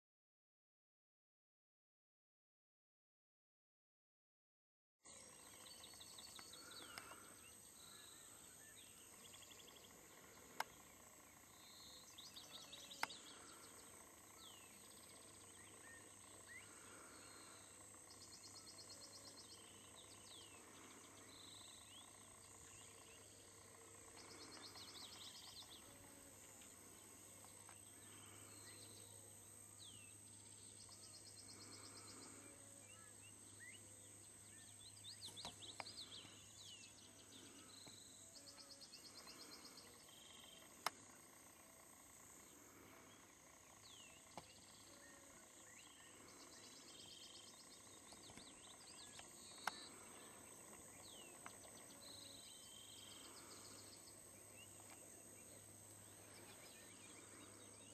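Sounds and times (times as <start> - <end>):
birds trilling and chirping: 5.1 - 57.9.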